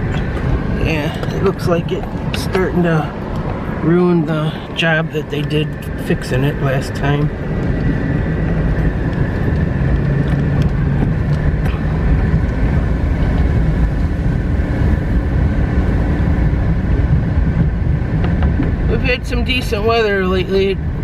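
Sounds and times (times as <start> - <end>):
car engine rumble: 0.0 - 21.0.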